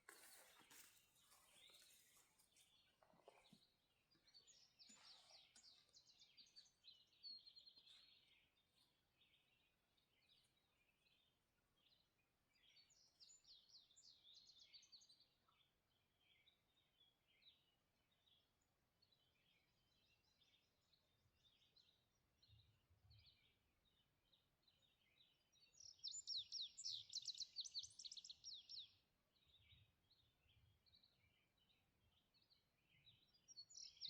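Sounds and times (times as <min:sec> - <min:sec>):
soft rustle: 0:00.0 - 0:03.7
faint songbird singing: 0:00.0 - 0:34.0.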